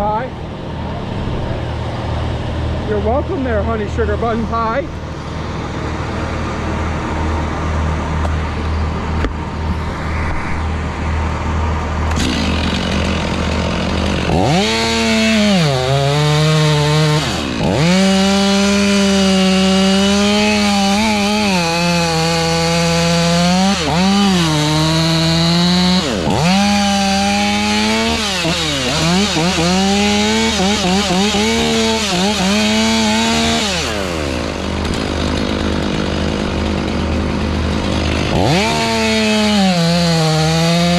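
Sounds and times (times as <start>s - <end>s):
low engine hum: 0.0s - 14.6s
chainsaw cutting wood: 12.0s - 40.9s.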